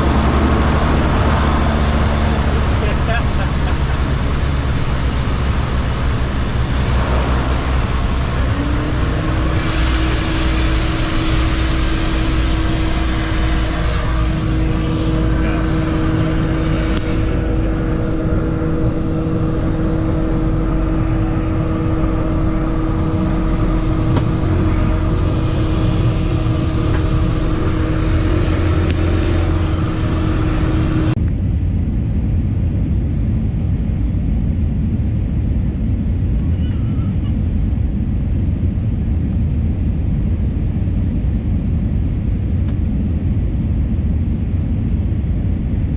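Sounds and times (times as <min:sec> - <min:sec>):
steady humming tone: 0:00.0 - 0:31.7
engine and airflow rumble: 0:00.0 - 0:45.9
high hiss: 0:01.7 - 0:31.2.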